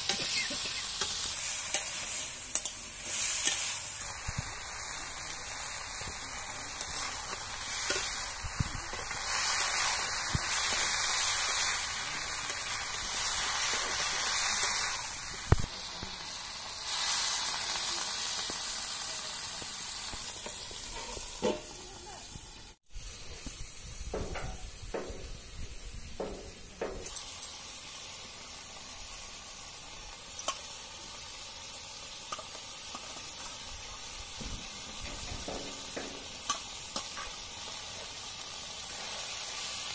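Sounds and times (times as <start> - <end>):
metal spatula scraping a pan: 0.0 - 4.0, 20.4 - 21.8
vegetables sizzling in hot oil: 0.0 - 39.9.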